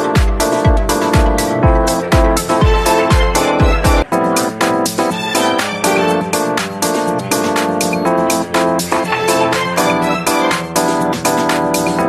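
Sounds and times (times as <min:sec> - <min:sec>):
kick drum: 0:00.0 - 0:04.1
ticking hi-hats: 0:00.0 - 0:12.0.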